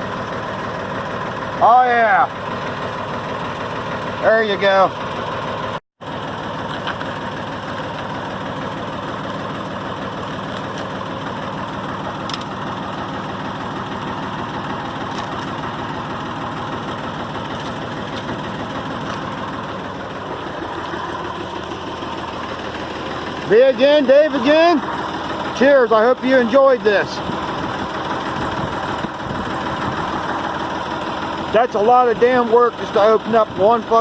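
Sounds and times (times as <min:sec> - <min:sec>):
tractor diesel engine idling: 0:00.0 - 0:34.0.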